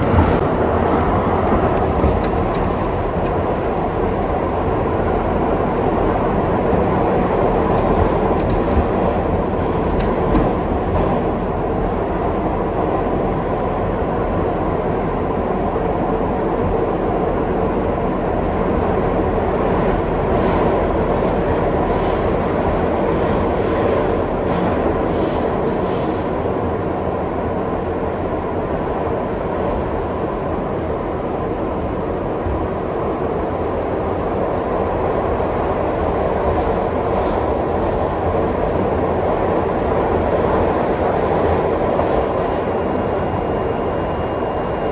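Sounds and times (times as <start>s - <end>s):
subway train rumbling: 0.0s - 44.9s.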